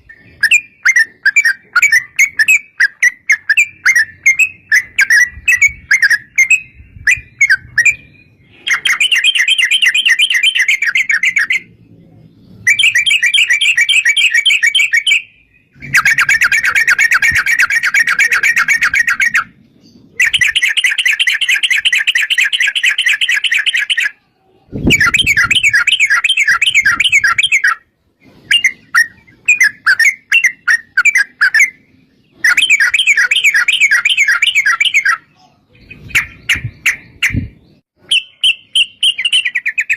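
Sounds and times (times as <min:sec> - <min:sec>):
bird chirps: 0:00.0 - 0:39.9
bird singing rolling trills: 0:00.0 - 0:39.9.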